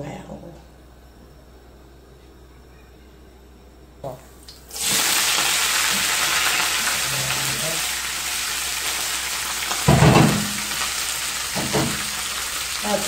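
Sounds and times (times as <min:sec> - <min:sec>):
onions sizzling in hot oil: 0:04.7 - 0:13.0.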